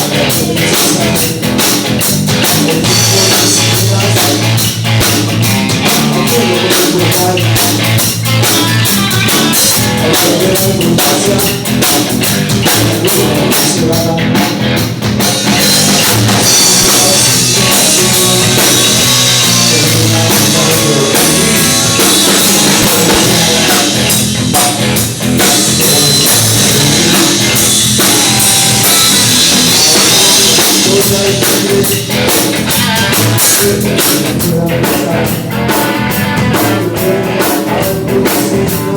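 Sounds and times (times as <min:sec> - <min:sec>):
rock band playing: 0:00.0 - 0:38.9.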